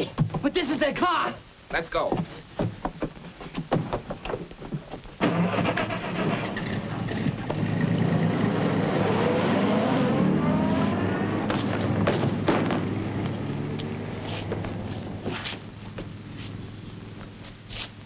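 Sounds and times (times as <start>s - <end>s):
car engine starting and revving: 5.2s - 15.3s
sharp cracks: 11.5s - 13.9s.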